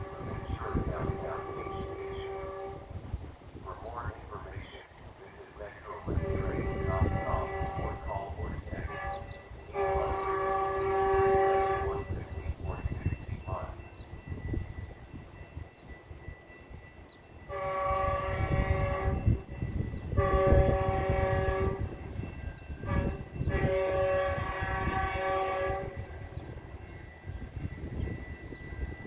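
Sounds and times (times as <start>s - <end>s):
train air horn: 0.0s - 3.2s, 5.6s - 13.8s, 17.4s - 27.5s
moving train rumble: 0.0s - 29.0s.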